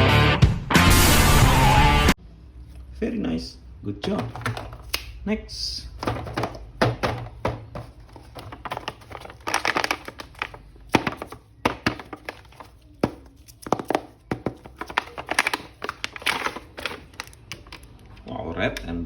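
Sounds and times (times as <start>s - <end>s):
plastic packaging crinkling: 6.0s - 18.2s.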